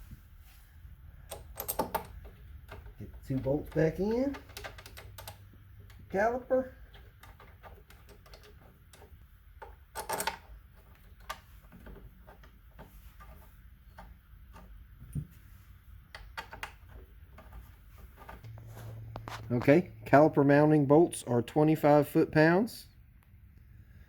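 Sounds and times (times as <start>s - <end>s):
hand tools and metal parts clicking: 1.2s - 14.8s.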